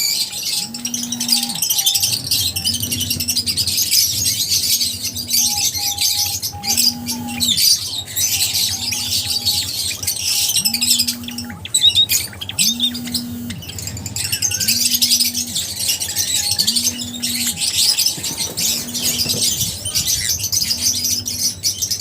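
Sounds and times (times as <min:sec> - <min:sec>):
lovebirds chirping: 0:00.0 - 0:22.0
low pulsing tone: 0:00.1 - 0:22.0.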